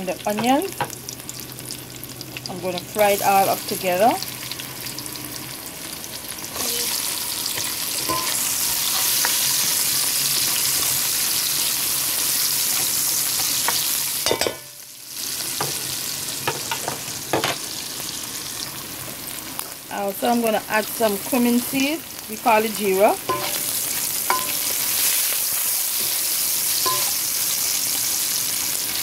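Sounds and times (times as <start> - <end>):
onion sizzling in hot oil: 0.0 - 29.0.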